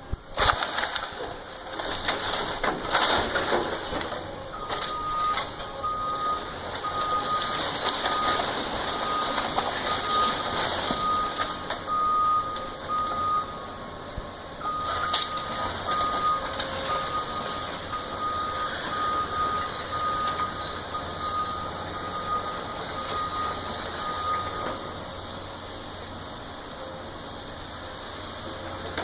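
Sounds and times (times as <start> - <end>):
engine droning: 0.0 - 29.0
backup alarm beeping: 4.6 - 13.7, 14.6 - 25.0.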